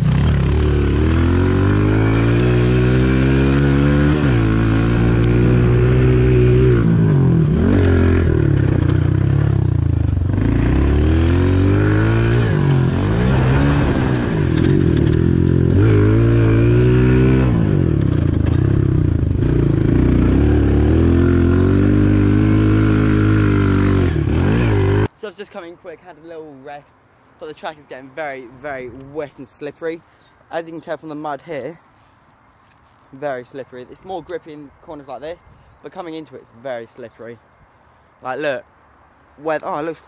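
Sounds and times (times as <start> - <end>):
motorbike engine revving: 0.0 - 25.1.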